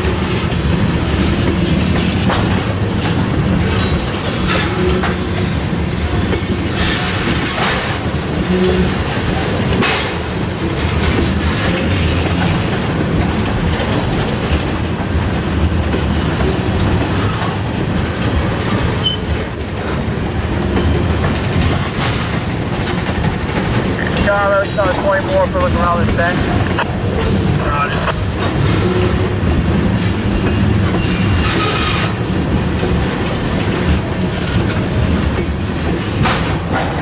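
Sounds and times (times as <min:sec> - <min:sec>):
train rumble: 0:00.0 - 0:37.0
train wheels clicking over rail joints: 0:00.0 - 0:37.0
high wheel squeal: 0:19.0 - 0:19.8.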